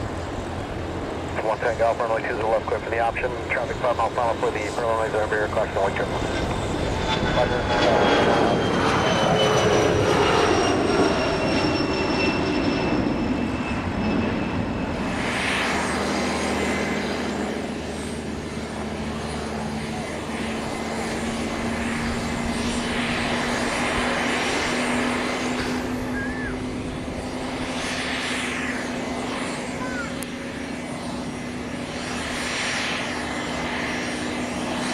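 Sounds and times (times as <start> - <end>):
jet engines passing: 0.0 - 34.9.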